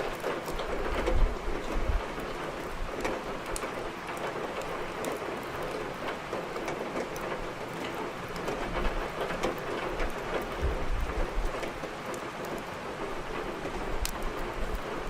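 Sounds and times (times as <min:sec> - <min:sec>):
firewood crackling: 0:00.0 - 0:15.0
heavy rain: 0:00.0 - 0:15.0.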